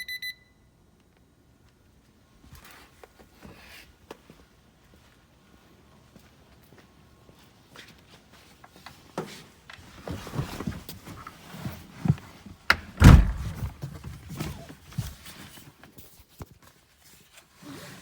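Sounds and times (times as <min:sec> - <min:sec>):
heavy car door shutting: 0:12.7 - 0:13.8
clicks and knocks in car cabin: 0:12.7 - 0:14.2.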